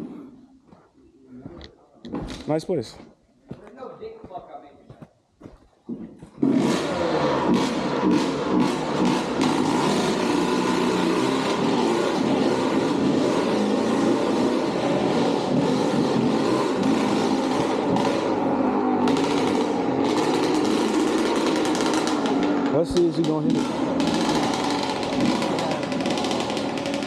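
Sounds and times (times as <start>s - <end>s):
dirt bike engine revving: 6.4s - 27.0s.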